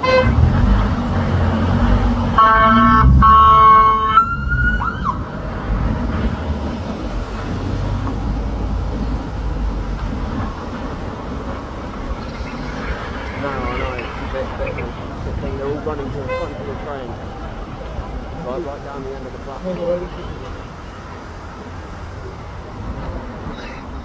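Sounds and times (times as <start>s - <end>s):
loud horn blast: 0.0s - 5.2s, 16.2s - 16.8s.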